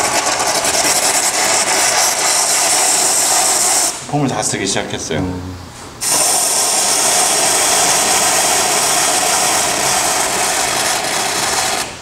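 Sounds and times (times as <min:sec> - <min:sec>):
spray foam gun hissing: 0:00.0 - 0:04.0, 0:06.0 - 0:12.0.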